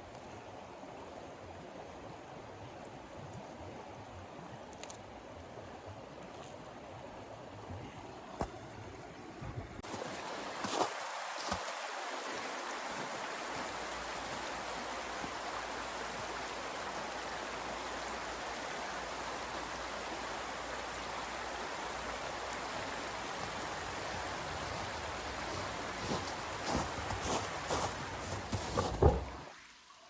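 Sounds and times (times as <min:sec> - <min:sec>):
steady rushing hiss: 0:21.7 - 0:29.4.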